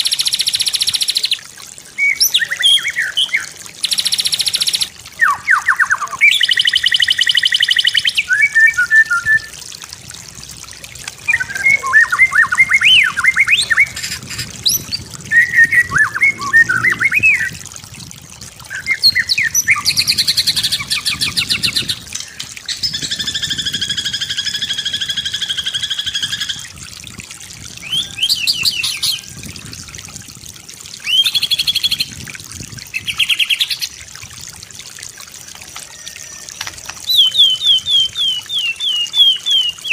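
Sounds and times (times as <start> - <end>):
faint trickle of water: 0.0 - 39.9
bird singing: 2.0 - 9.5, 11.3 - 17.5.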